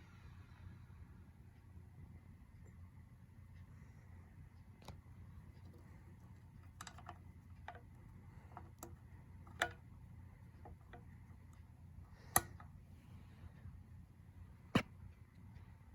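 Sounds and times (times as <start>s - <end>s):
faint low hum: 0.0s - 15.9s
light clicks and taps: 4.6s - 12.8s.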